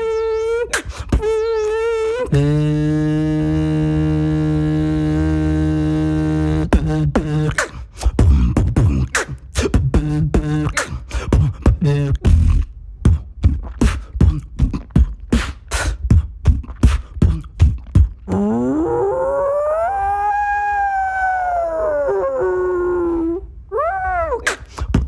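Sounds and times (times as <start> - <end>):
person beatboxing: 0.0 - 18.7, 24.4 - 25.0.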